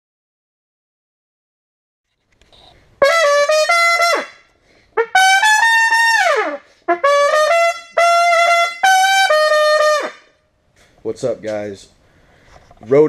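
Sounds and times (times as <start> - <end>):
brass horn playing: 3.0 - 10.3.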